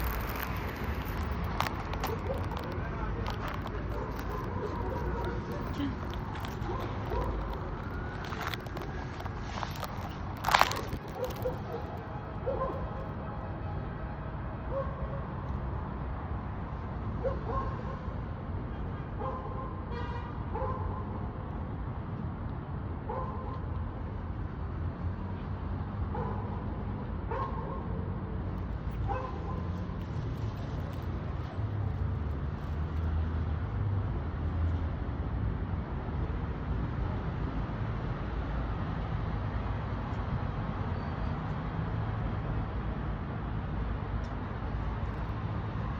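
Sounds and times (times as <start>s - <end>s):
traffic rumble: 0.0s - 45.9s
dog barking: 3.9s - 5.6s, 11.2s - 12.9s, 17.2s - 18.1s, 19.2s - 19.8s, 20.5s - 21.0s, 23.1s - 23.5s, 26.1s - 26.6s, 27.3s - 28.0s, 29.1s - 29.7s.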